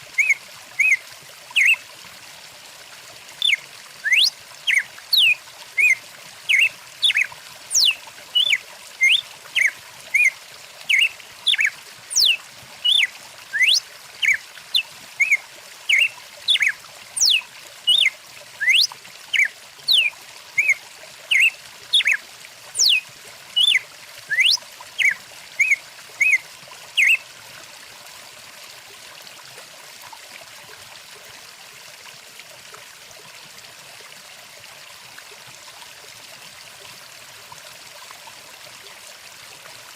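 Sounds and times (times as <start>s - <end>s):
stream rushing: 0.0s - 1.0s, 1.6s - 1.8s, 3.2s - 10.3s, 10.9s - 23.0s
songbird whistled chirps: 0.2s - 1.0s, 1.6s - 1.8s, 3.4s - 10.3s, 10.9s - 22.2s, 22.8s - 23.0s, 23.6s - 26.4s, 27.0s - 27.2s.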